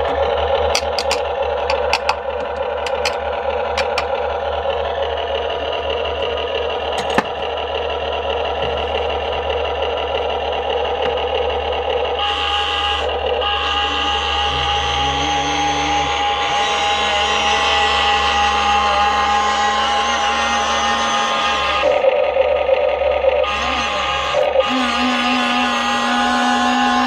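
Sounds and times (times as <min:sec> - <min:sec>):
electric motors and gearboxes whirring: 0:00.0 - 0:04.2, 0:04.8 - 0:22.2, 0:23.4 - 0:27.0
high-pitched whine: 0:11.5 - 0:22.4, 0:23.2 - 0:27.0.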